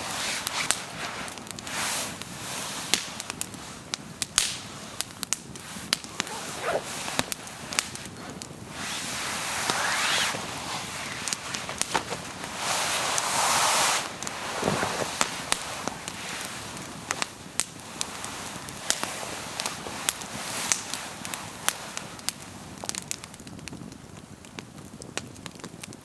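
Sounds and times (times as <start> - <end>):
steady hiss: 0.0 - 22.8
campfire crackling: 0.0 - 26.0
loud rushing hiss: 5.8 - 16.8.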